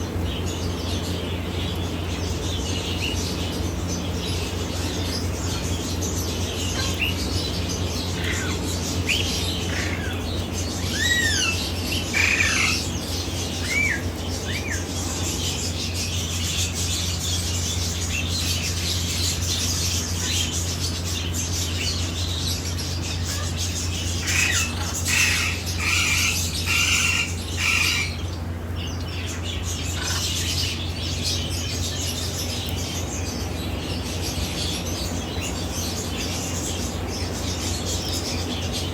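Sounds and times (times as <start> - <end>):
steady low hum: 0.0 - 38.9
parrot whistling and squawking: 10.9 - 12.9, 24.2 - 28.2.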